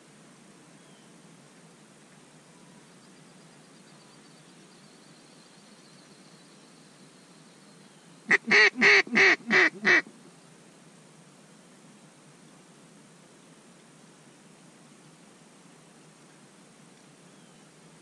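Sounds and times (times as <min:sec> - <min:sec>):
duck call quacks: 0:08.3 - 0:10.1.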